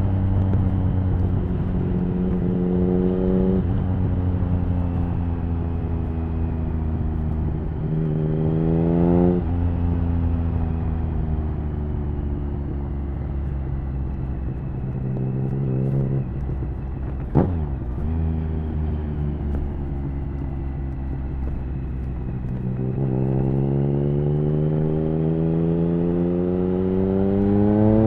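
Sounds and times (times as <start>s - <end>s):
motorcycle engine revving: 6.9s - 10.4s, 14.2s - 28.0s.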